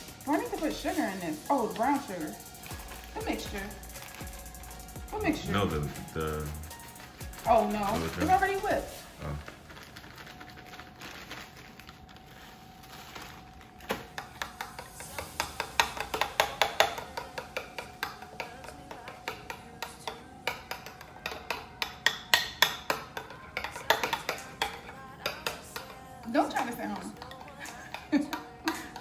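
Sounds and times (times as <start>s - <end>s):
utensil clinking against bowl: 14.2s - 29.0s.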